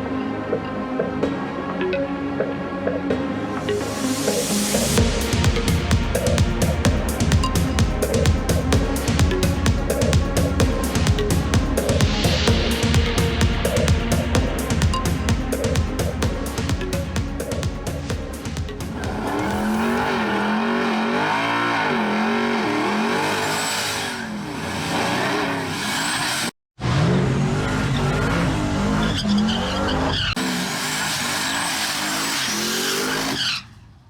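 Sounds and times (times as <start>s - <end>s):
race car engines at full throttle: 0.0s - 34.0s
tyre squeal: 27.6s - 33.9s.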